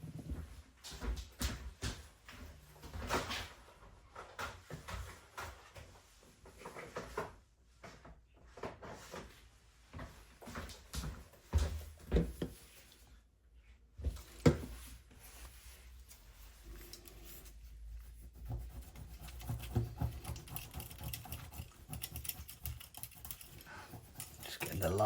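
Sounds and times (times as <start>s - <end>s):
tool scraping: 16.1s - 25.0s.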